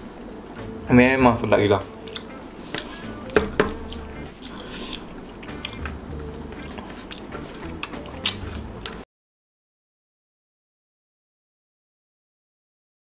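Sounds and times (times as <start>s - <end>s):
low hum: 0.0s - 9.0s
person chewing food: 2.0s - 9.0s
mouth clicks and smacks: 2.1s - 2.9s, 3.7s - 6.0s, 6.6s - 9.0s.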